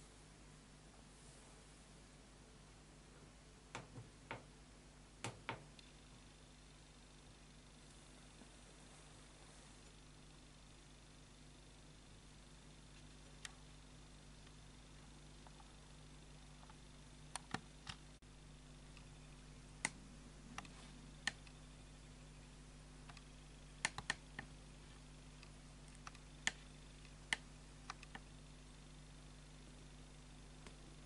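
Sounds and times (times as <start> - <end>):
sharp clicks and ticks: 16.6 - 18.0, 23.1 - 24.5, 25.4 - 28.3.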